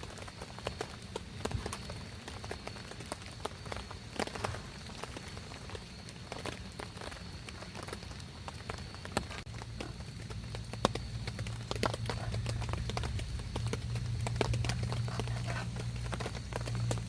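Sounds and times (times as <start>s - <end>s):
rain patter: 0.0s - 17.0s
raindrops tapping: 0.0s - 17.0s
low steady hum: 9.3s - 17.0s.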